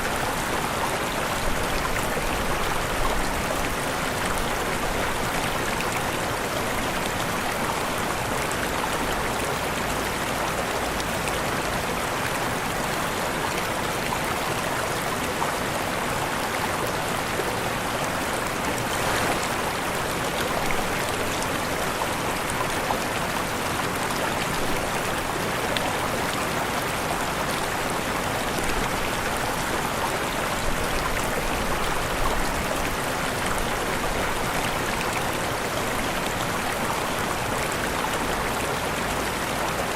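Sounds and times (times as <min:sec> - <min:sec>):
waterfall roaring: 0:15.8 - 0:39.9
small water splashes: 0:18.6 - 0:22.2.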